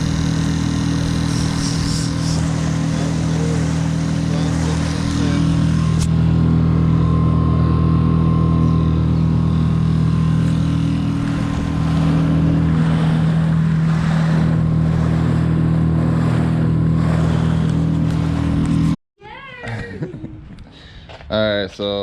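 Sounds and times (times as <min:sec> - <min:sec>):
outboard motor humming: 0:00.0 - 0:19.0
wind and water rushing: 0:10.3 - 0:19.0.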